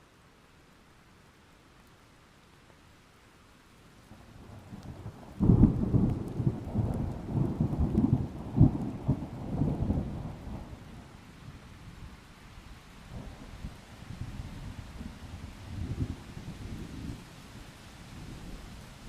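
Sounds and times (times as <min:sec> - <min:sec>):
rain: 0:00.0 - 0:19.0.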